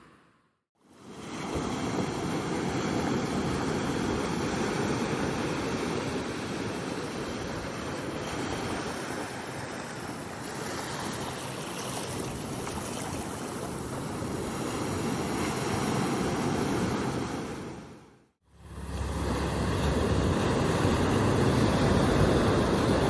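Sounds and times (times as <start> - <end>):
ocean surf washing: 1.0 - 23.0.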